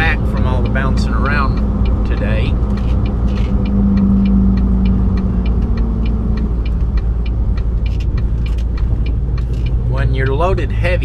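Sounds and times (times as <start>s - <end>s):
light regular ticking: 0.0s - 11.0s
truck road and engine rumble: 0.0s - 11.0s
drone: 1.5s - 6.9s.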